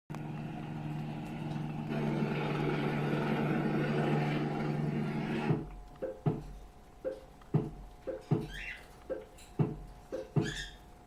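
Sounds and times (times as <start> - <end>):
small motor humming: 0.1 - 5.7.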